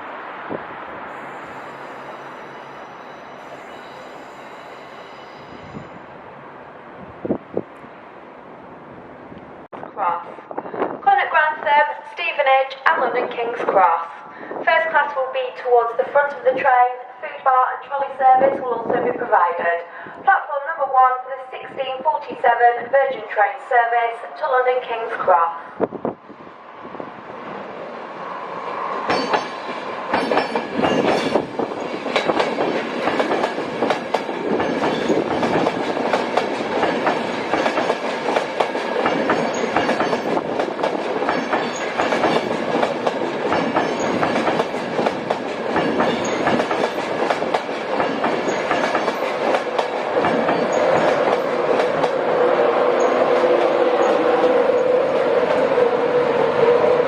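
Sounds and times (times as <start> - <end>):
train wheels clattering over rails: 29.0 - 52.4.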